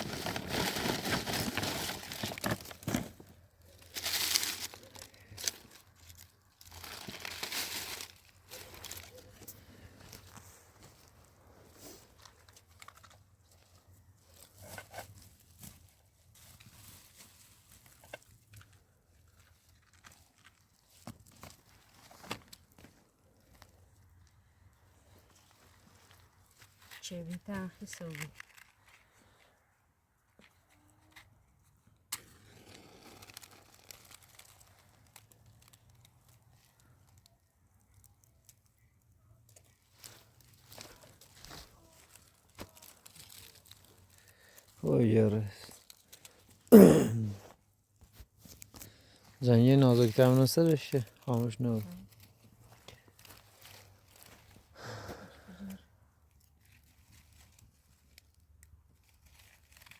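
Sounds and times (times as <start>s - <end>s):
plastic sheet crinkling: 0.0s - 9.5s, 25.5s - 29.1s, 32.3s - 38.0s, 39.4s - 46.6s, 49.7s - 54.7s, 56.4s - 59.9s.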